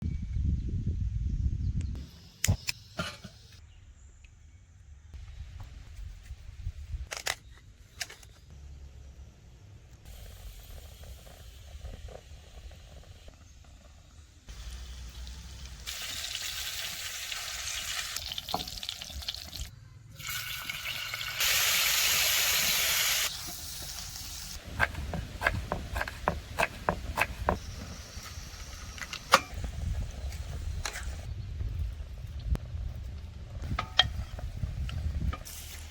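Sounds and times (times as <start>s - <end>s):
food sizzling in a pan: 14.6s - 24.6s.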